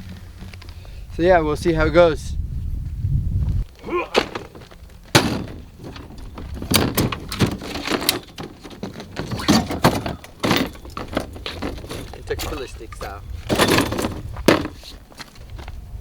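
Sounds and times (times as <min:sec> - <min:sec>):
irregular knocks and clunks: 0:04.2 - 0:14.9.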